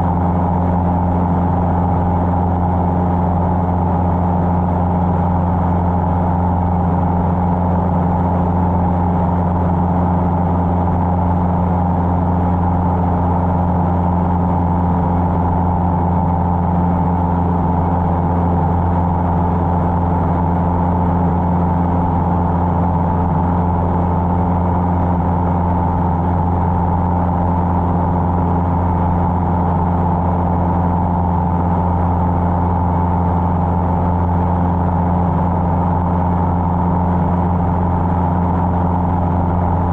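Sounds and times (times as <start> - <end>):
small plane engine droning: 0.0 - 39.9.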